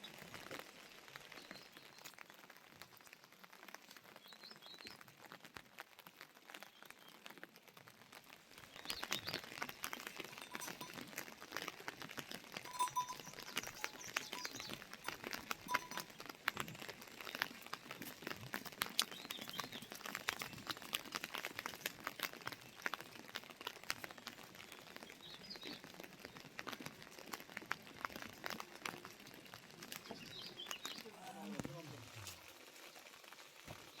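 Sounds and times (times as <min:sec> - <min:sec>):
raindrops pattering: 0:00.0 - 0:34.0
bird chirps: 0:12.7 - 0:16.1, 0:30.0 - 0:31.9.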